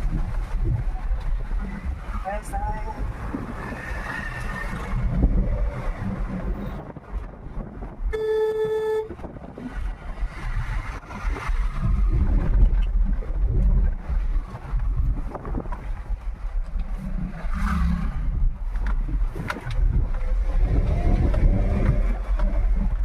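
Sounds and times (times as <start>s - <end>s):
car driving rumble: 0.0s - 23.0s
vehicle horn honk: 8.1s - 9.2s.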